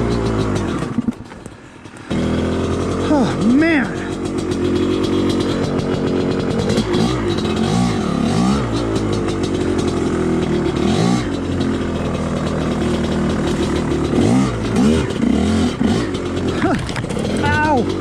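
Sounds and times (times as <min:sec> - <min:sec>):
dirt bike engine revving: 0:00.0 - 0:18.0
bike knocks and clatter: 0:04.1 - 0:18.0.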